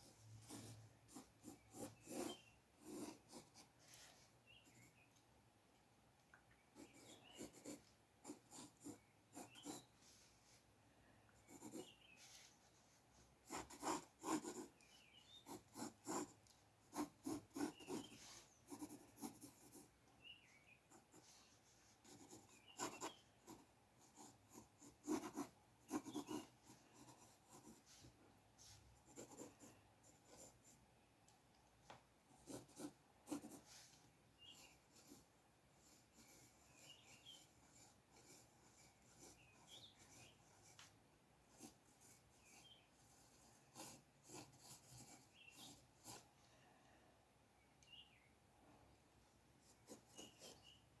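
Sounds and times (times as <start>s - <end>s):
drawing tool scratching on paper: 0.0s - 5.0s, 6.8s - 10.4s, 11.4s - 12.8s, 13.4s - 19.9s, 20.9s - 30.7s, 32.4s - 40.9s, 41.5s - 46.3s, 49.7s - 50.8s.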